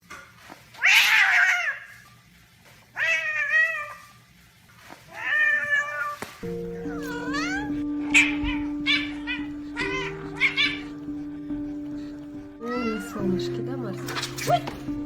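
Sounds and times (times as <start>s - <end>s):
cat meowing: 3.0s - 4.1s, 5.1s - 11.1s, 12.6s - 13.3s
steady music tones: 6.4s - 15.0s.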